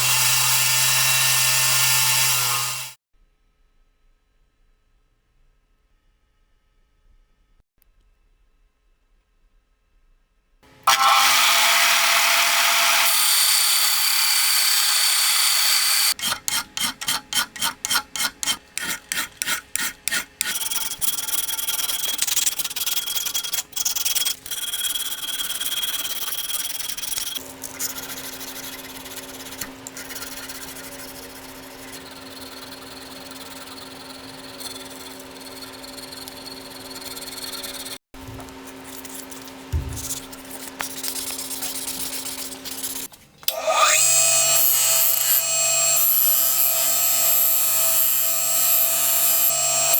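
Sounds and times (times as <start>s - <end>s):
hand filing strokes: 12.1s - 38.0s, 38.7s - 49.9s
motor hum: 24.4s - 49.9s
continuous rubbing: 38.6s - 43.3s.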